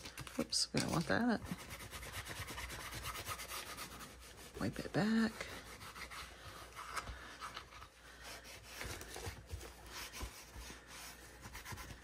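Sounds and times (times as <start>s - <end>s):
cloth rubbing on wood: 1.1s - 6.9s.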